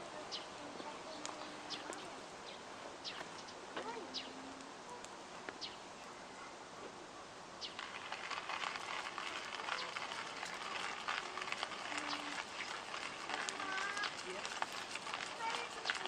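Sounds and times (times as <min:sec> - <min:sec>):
birds chirping: 0:00.0 - 0:06.5, 0:07.6 - 0:16.0
steady outdoor hiss: 0:00.0 - 0:16.0
dense crackling: 0:07.6 - 0:16.0.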